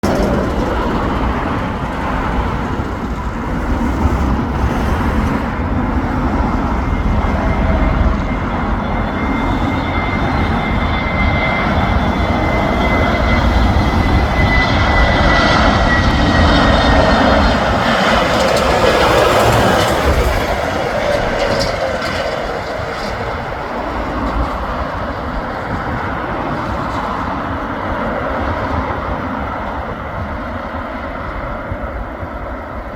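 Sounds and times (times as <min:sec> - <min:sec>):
jet airliner passing: 0:00.0 - 0:32.9
jet engine whine: 0:00.0 - 0:32.9.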